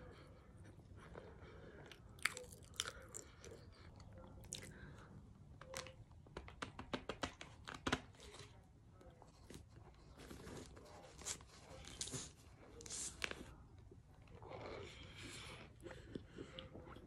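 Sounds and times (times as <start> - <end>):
person chewing crunchy cornstarch: 1.8 - 4.9.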